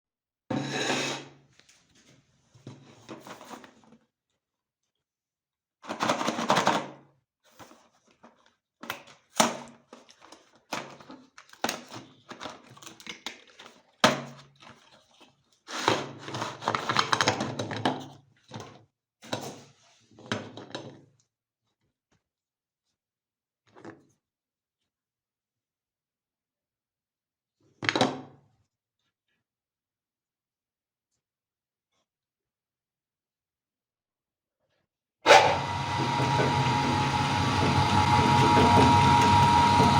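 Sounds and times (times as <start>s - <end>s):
meat grinder grinding cookies: 35.3s - 39.9s.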